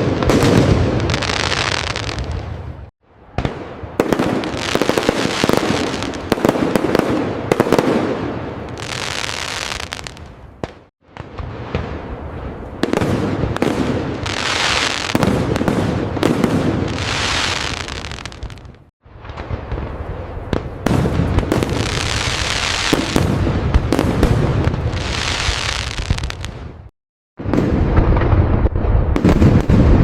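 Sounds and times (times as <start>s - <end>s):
fireworks bangs and crackling: 0.0s - 30.0s.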